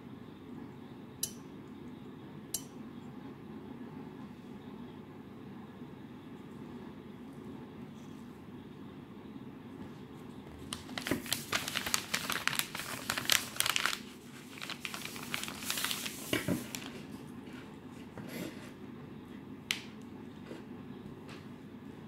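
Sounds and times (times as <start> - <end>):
steady low hum: 0.0 - 16.0
packaging crinkling: 10.6 - 17.1.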